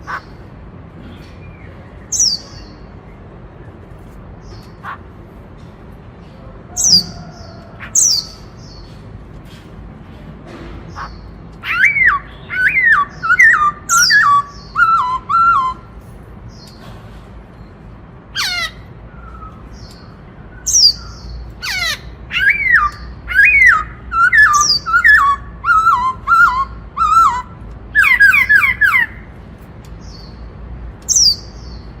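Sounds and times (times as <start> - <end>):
bird whistled song: 1.5 - 2.9, 11.6 - 15.9, 18.4 - 29.2, 31.1 - 31.9
high bird call notes: 6.6 - 9.0, 10.8 - 16.8, 17.6 - 29.4.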